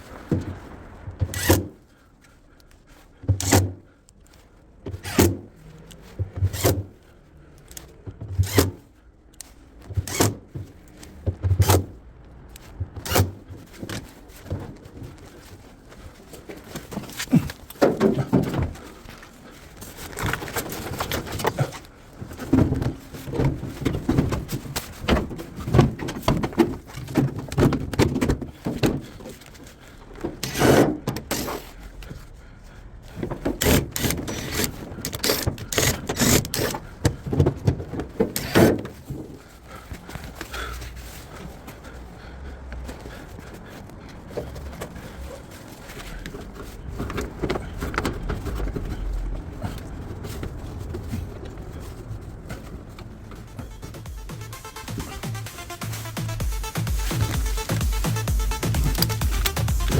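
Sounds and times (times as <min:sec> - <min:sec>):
clattering and knocking: 0:16.7 - 0:19.0, 0:19.8 - 0:29.7.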